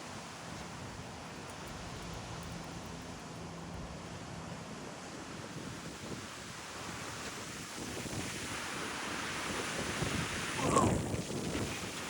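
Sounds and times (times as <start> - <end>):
strong gusty wind: 4.3 - 12.0
wind buffeting microphone: 4.4 - 12.0.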